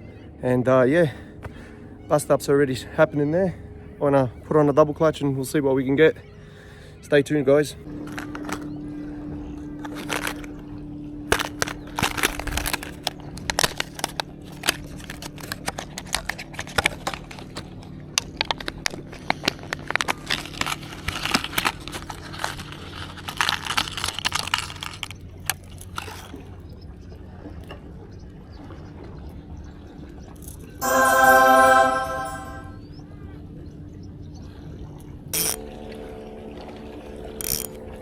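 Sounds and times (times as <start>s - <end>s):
fishing tackle clicking and crinkling: 11.3s - 17.6s, 18.2s - 26.3s.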